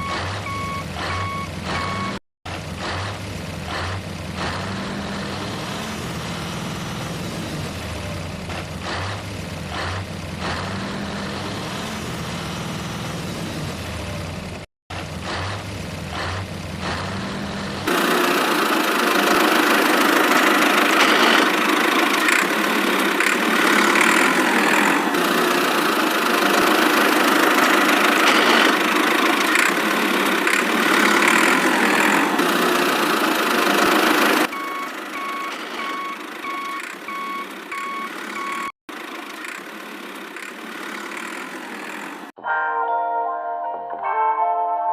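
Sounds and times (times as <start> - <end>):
reversing alarm beeping: 0.0 - 2.2, 34.5 - 38.7
heavy vehicle engine: 0.0 - 42.4.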